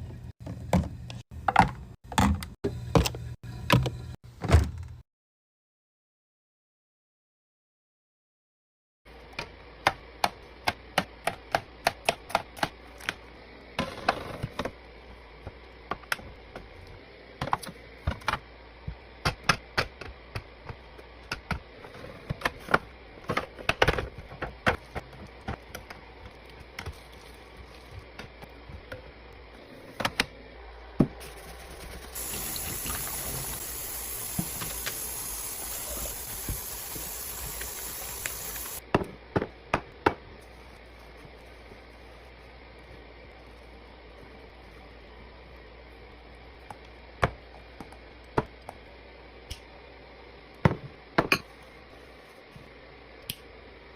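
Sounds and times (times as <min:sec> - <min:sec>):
steady hiss: 0:31.3 - 0:38.8.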